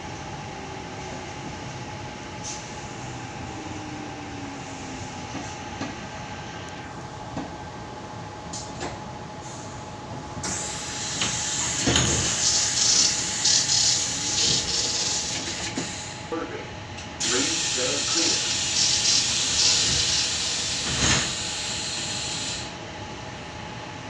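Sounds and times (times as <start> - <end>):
electric train running hum: 0.0 - 24.0
loud rushing hiss: 17.2 - 22.4.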